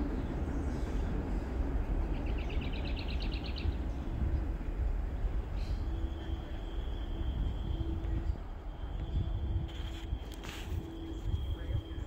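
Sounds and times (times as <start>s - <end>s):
songbird trill: 2.0s - 4.5s.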